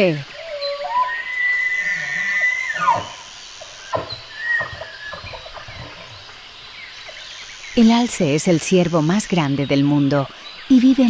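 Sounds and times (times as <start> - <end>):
deer bugle whistle: 0.4 - 3.3.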